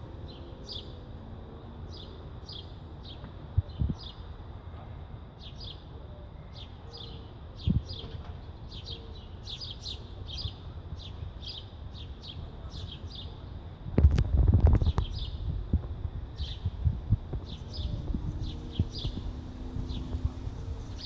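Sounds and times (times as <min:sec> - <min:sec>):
songbird chirping: 0:00.0 - 0:04.4, 0:05.3 - 0:13.6, 0:17.4 - 0:21.0.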